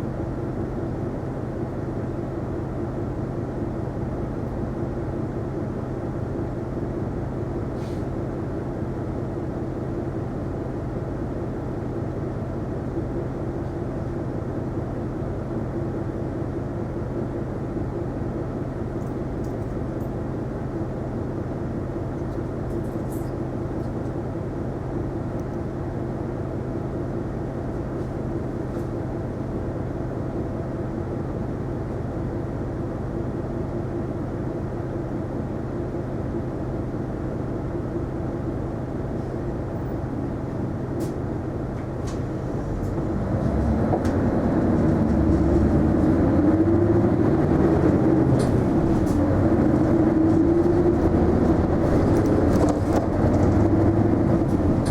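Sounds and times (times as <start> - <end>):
bus engine humming: 0.0 - 54.9.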